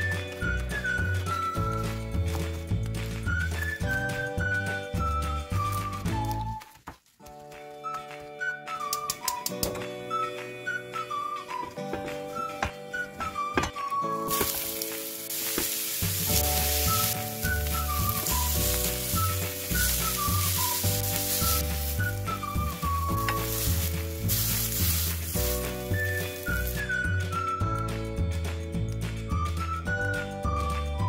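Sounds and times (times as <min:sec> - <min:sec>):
background music with whistled melody: 0:00.0 - 0:31.0
vegetables sizzling on a grill pan: 0:14.3 - 0:22.4, 0:23.1 - 0:26.8.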